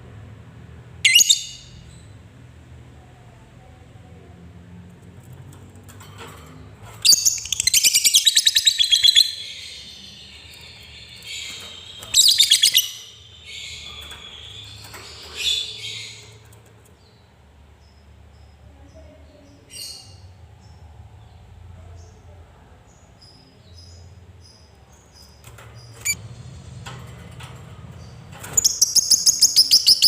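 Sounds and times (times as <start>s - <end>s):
shrill bird calls: 1.1s - 1.8s, 28.6s - 30.0s
bird chattering trill: 28.6s - 30.0s.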